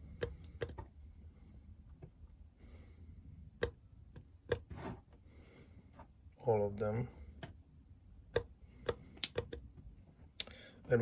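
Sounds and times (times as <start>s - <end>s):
small parts clicking and tapping: 0.1s - 0.9s, 8.3s - 9.9s.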